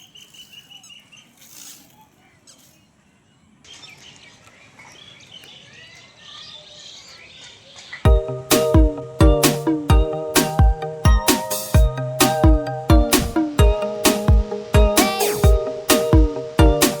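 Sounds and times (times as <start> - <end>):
small birds chirping: 0.0 - 9.5
loud music with strong beat: 8.1 - 17.0.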